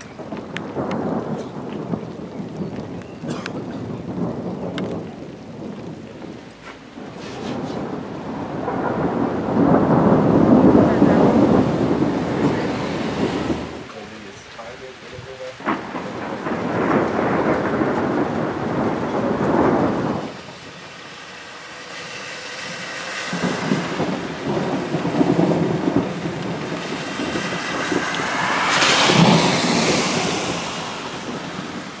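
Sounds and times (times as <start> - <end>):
rolling thunder: 0.0 - 32.0
steady rain: 0.0 - 32.0.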